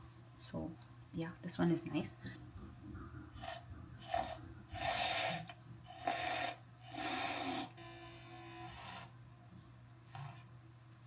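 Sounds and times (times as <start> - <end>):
handheld frother whirring: 3.4 - 9.1, 10.1 - 10.5.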